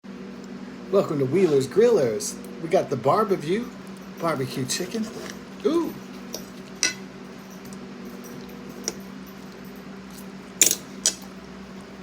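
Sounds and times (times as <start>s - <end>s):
tableware clicking and clattering: 6.4s - 7.0s, 10.6s - 11.3s.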